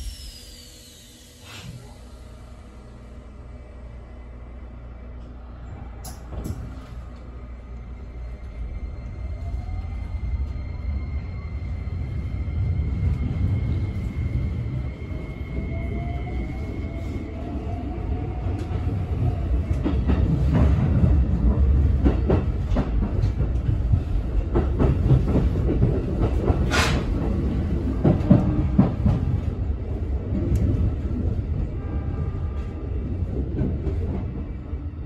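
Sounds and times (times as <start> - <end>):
train motor whine: 0.0 - 4.2.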